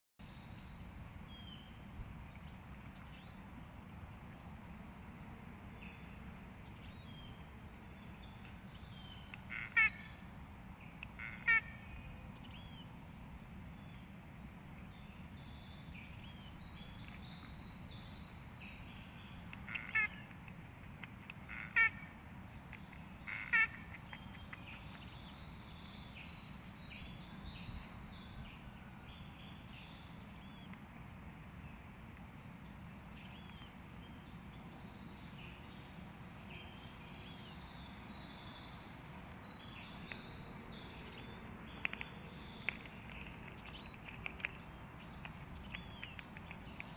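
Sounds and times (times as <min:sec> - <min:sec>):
small birds chirping: 0:05.8 - 0:13.0, 0:14.8 - 0:31.0, 0:31.6 - 0:46.9
loud sharp bird calls: 0:09.2 - 0:10.2, 0:11.1 - 0:12.1, 0:19.1 - 0:20.4, 0:21.3 - 0:25.6.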